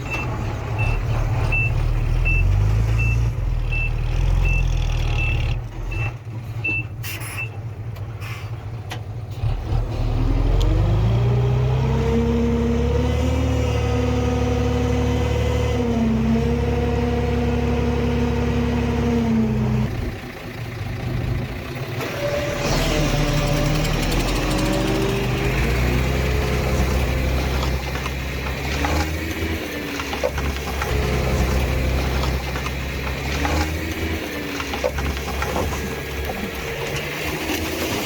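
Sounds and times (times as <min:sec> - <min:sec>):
diesel engine revving: 0:00.0 - 0:06.6, 0:09.3 - 0:38.0
reversing alarm beeping: 0:00.0 - 0:07.6.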